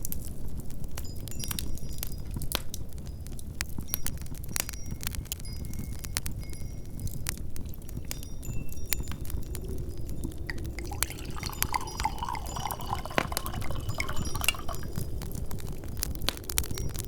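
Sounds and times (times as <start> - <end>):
wood fire crackling: 0.0 - 17.0
low rumble of wind: 4.2 - 17.0
liquid pouring into a glass: 10.0 - 15.9.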